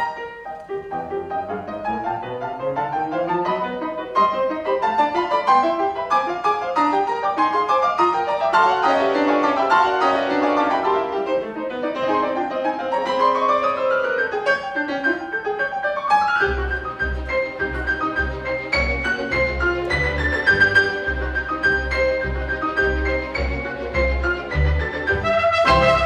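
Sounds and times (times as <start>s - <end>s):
string orchestra: 0.0s - 26.0s
piano runs and chords: 7.1s - 26.0s.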